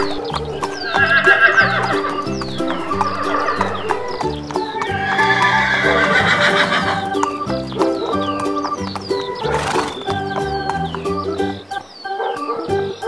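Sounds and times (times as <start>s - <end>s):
cheerful background music: 0.0s - 13.0s
horse whinny: 0.6s - 4.2s, 4.8s - 7.3s.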